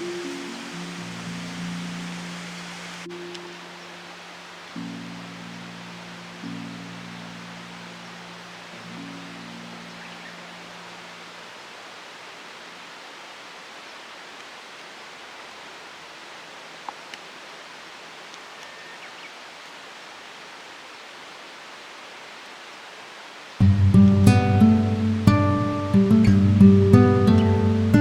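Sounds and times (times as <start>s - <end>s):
outdoor ambient hiss: 0.0s - 28.0s
faint click: 18.3s - 18.8s.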